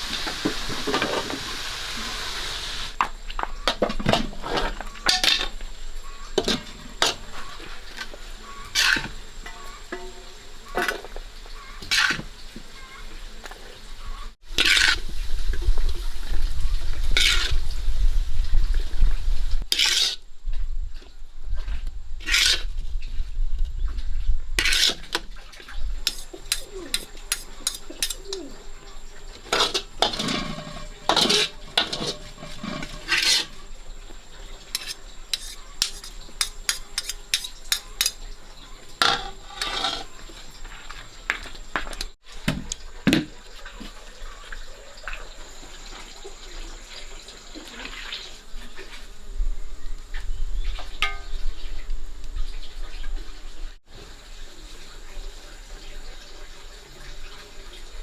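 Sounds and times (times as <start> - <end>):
utensils clinking on pots: 3.6 - 12.9, 26.0 - 33.7, 34.6 - 41.0, 51.0 - 51.5
liquid being stirred: 24.6 - 33.6, 34.6 - 38.4.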